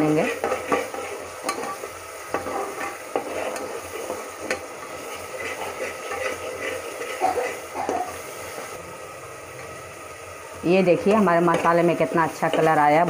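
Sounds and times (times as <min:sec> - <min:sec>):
metal spoon scraping pot: 0:00.0 - 0:08.2
masala sizzling in oil: 0:00.0 - 0:13.0.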